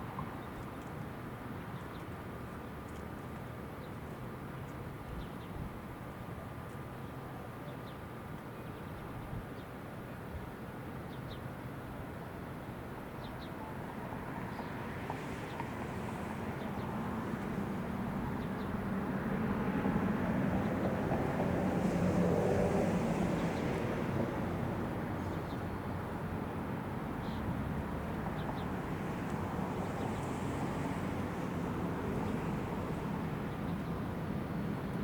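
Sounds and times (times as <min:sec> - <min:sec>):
passing vehicle rumble: 0:13.8 - 0:34.9.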